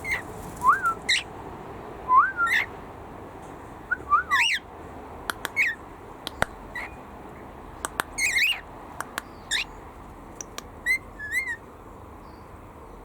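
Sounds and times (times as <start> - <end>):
cockatiels chirping: 0.0 - 1.2, 2.5 - 2.7, 4.3 - 4.6, 5.4 - 5.8, 8.2 - 9.8, 10.4 - 11.6
cockatiels whistling: 2.1 - 2.7, 3.9 - 4.6.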